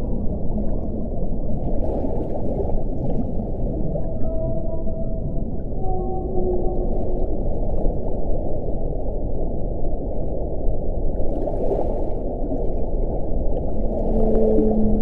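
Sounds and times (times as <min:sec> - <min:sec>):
low moaning wind howl: 0:00.0 - 0:15.0
strong wind roaring: 0:00.0 - 0:15.0.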